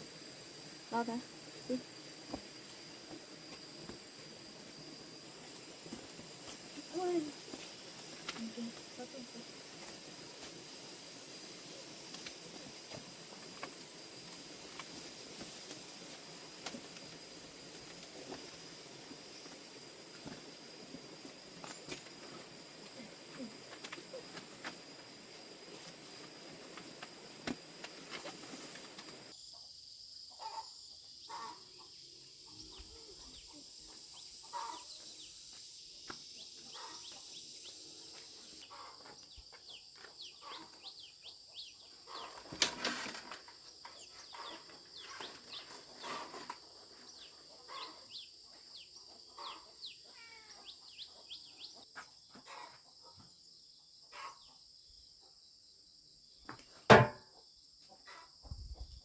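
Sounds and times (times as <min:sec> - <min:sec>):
high insect drone: 0:00.0 - 0:59.0
chickens clucking: 0:34.4 - 0:34.9, 0:38.7 - 0:39.2, 0:40.4 - 0:41.0, 0:49.1 - 0:49.8
sharp knock: 0:56.9 - 0:57.2.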